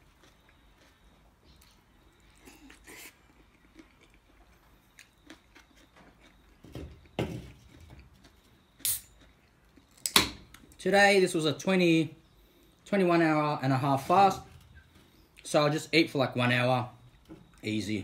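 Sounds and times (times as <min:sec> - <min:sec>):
man chewing food: 0:00.0 - 0:10.7
thump: 0:06.7 - 0:07.5.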